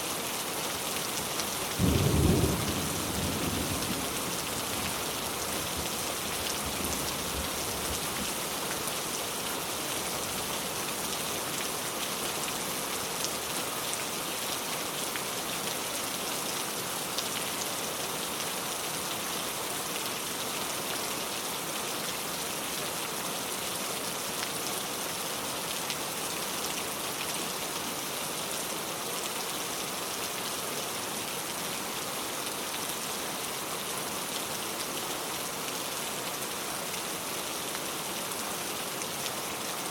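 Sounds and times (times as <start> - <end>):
steady rain falling: 0.0 - 39.9
low thunder rumble: 1.8 - 5.0.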